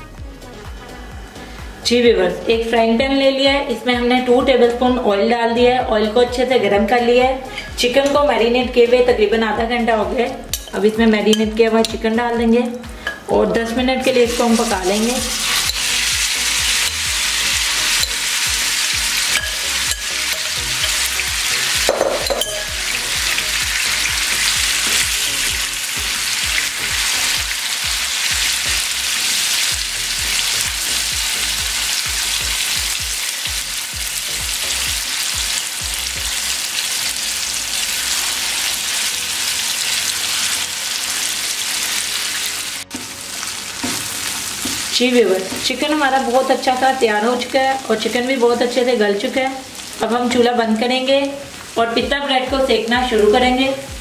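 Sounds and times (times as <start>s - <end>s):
chicken sizzling in hot oil: 14.0s - 53.3s
spatula scraping and knocking pan: 21.7s - 22.9s.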